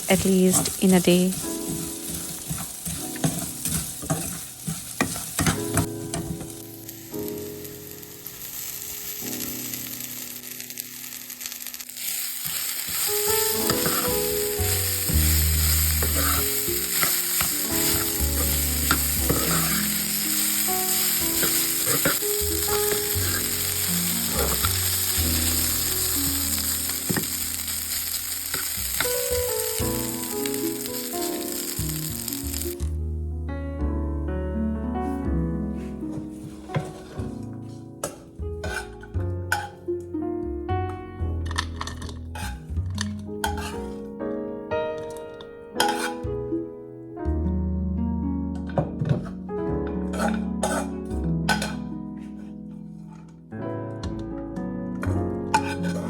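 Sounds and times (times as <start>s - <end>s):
sizzling hiss: 0.0s - 32.9s
soft background music: 0.0s - 56.0s.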